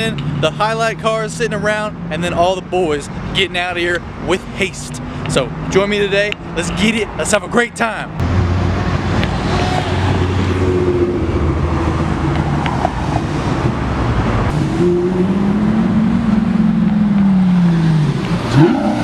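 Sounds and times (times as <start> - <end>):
car engines rumbling: 0.0 - 19.0
car passing by: 8.3 - 14.7.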